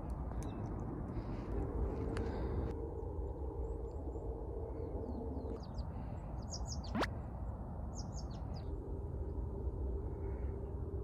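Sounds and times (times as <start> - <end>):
small birds chirping: 0.0 - 1.5, 3.3 - 7.1, 7.8 - 8.8
low outdoor rumble: 0.0 - 11.0.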